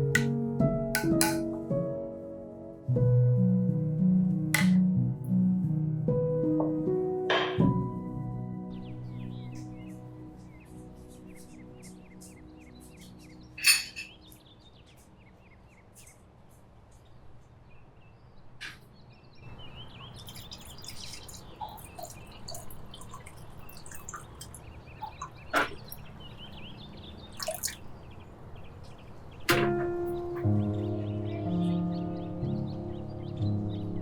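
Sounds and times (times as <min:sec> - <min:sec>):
birds chirping: 0:08.4 - 0:34.0
clinks and knocks of glassware: 0:13.6 - 0:14.2.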